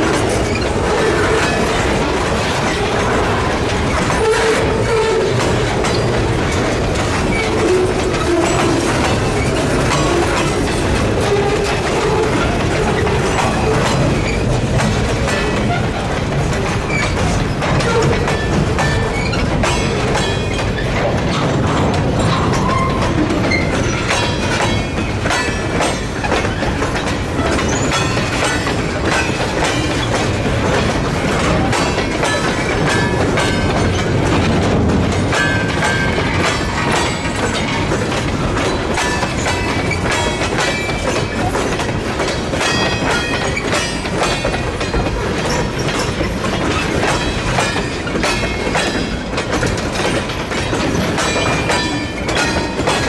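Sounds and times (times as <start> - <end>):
freight train rolling past: 0.0 - 53.0
wheels clicking over rail joints: 0.0 - 53.0
wheel squeals: 0.2 - 16.0, 16.7 - 30.4
crossing bell ringing: 17.8 - 20.8, 27.1 - 30.4, 31.2 - 53.0.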